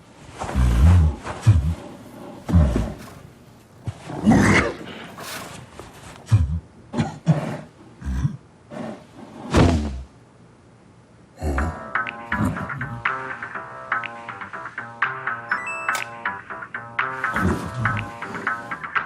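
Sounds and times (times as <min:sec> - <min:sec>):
bear growling and roaring: 0:00.5 - 0:10.1.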